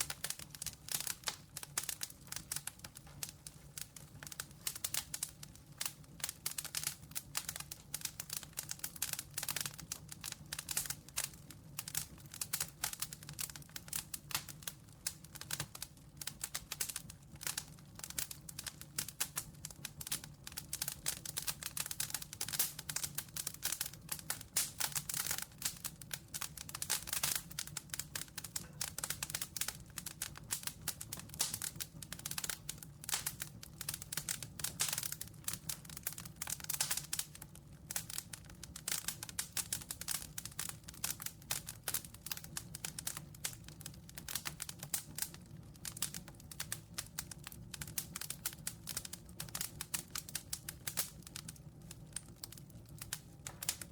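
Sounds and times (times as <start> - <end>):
campfire crackling: 0.0 - 53.9.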